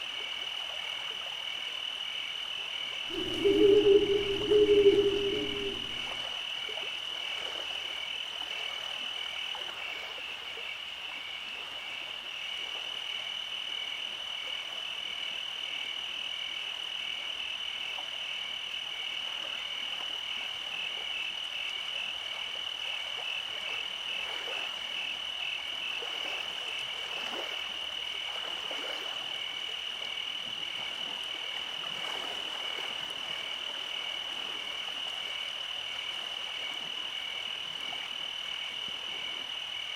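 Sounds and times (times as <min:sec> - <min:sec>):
high-pitched animal trill: 0:03.1 - 0:06.2
pulsing lower trill: 0:03.1 - 0:06.2.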